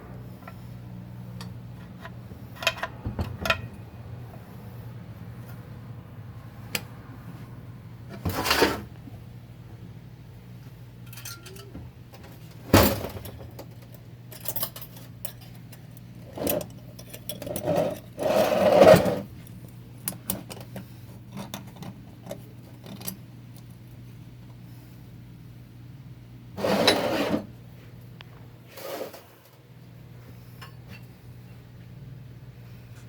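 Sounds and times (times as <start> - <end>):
steady low hum: 0.0 - 28.8
metal clinks and scrapes: 11.0 - 11.7, 13.6 - 19.3
metal parts clanking: 11.0 - 11.7
metal parts clattering: 11.0 - 11.7.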